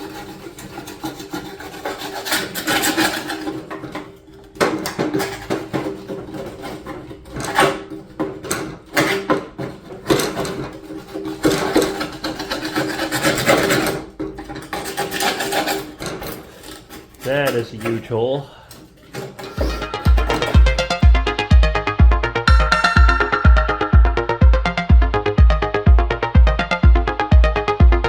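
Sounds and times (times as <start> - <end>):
scraping on sheet metal: 0.0 - 21.0.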